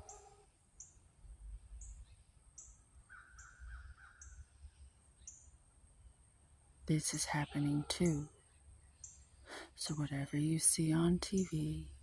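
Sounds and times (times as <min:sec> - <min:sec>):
distant crow cawing: 0:03.1 - 0:04.4.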